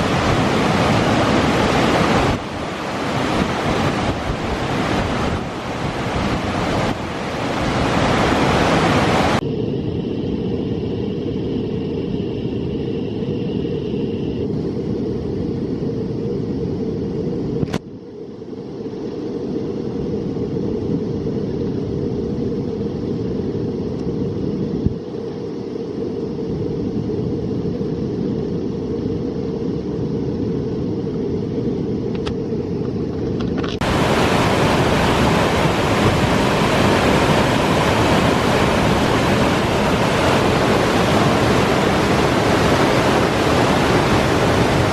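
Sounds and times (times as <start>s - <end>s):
whitewater rushing: 0.0s - 9.4s, 33.8s - 44.9s.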